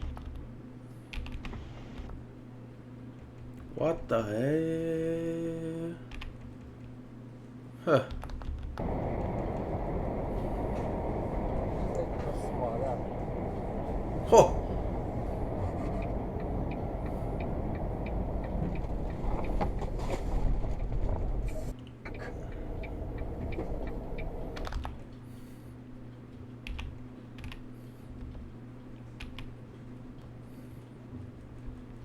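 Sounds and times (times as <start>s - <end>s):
vehicle rumble with road noise: 8.8s - 25.1s.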